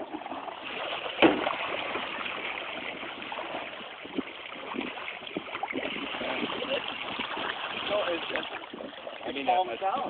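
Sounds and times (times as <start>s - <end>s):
water lapping against canoe hull: 0.0s - 10.0s
sharp knock: 1.2s - 1.5s.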